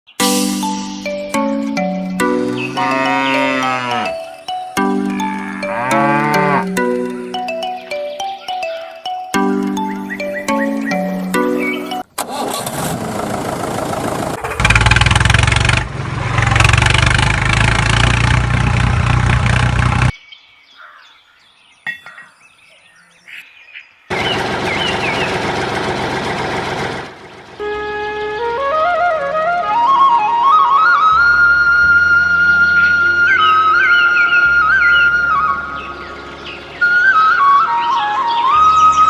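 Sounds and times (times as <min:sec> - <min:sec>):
music with steady notes: 0:00.2 - 0:12.0
small diesel engine running: 0:12.2 - 0:20.1, 0:24.1 - 0:27.8.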